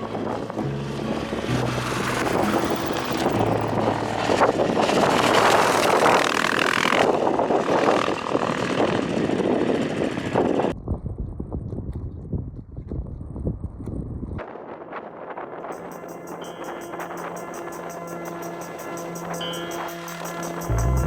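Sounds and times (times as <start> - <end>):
wind rushing over microphone: 0.0 - 18.1
motorcycle engine running: 0.5 - 10.7, 20.6 - 21.0.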